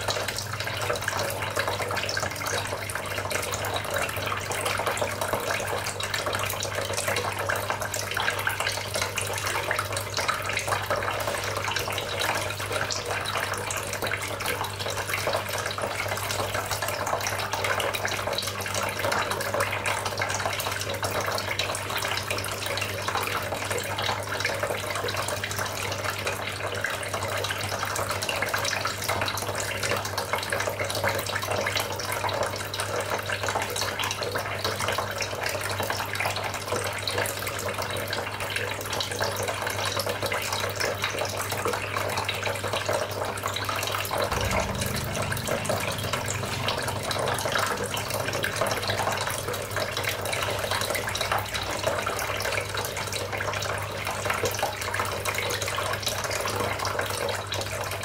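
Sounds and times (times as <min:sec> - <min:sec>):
fountain water splashing: 0:44.1 - 0:55.0
steady low hum: 0:44.2 - 0:51.7.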